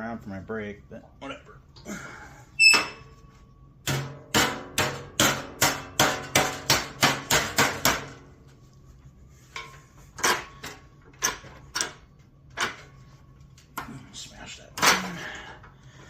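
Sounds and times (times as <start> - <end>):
hammer striking sheet metal: 3.8 - 8.2.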